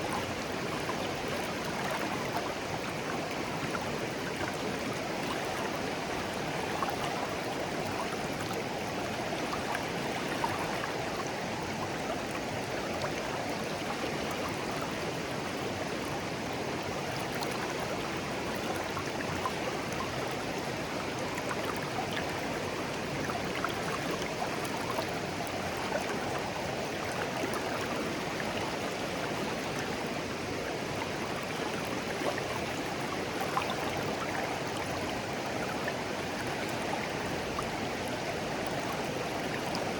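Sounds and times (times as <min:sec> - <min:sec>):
small water splashes: 0:00.0 - 0:39.9
stream babbling over stones: 0:00.0 - 0:39.9.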